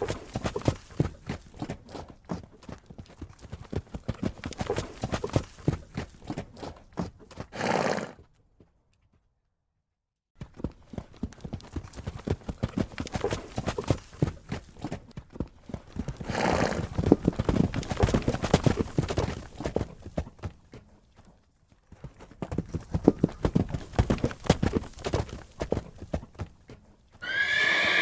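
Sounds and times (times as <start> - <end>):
horse hooves clip-clopping: 0.0 - 9.3, 10.4 - 28.0
horse neighing: 27.2 - 28.0.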